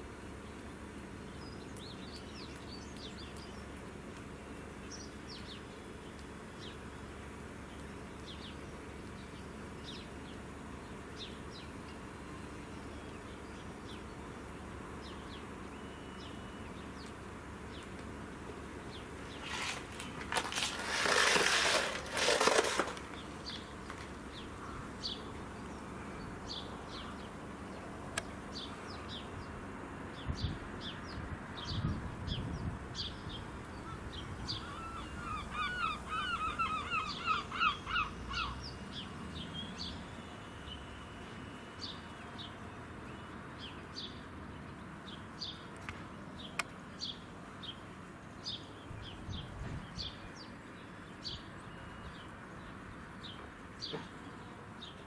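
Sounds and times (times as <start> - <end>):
harsh bird calls: 33.0 - 39.9.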